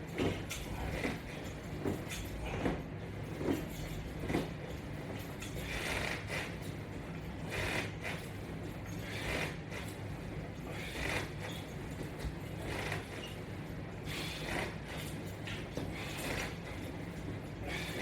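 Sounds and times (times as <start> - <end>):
straps and mat creaking: 10.7 - 13.4, 14.1 - 18.0.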